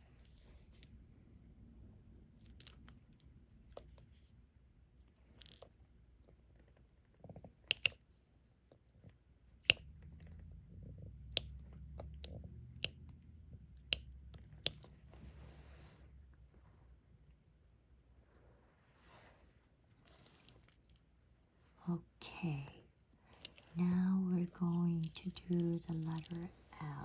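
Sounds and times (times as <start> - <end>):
faint low hum: 0.0 - 27.0
stylus clicking and tapping: 7.2 - 8.1, 9.5 - 15.3, 22.5 - 27.0.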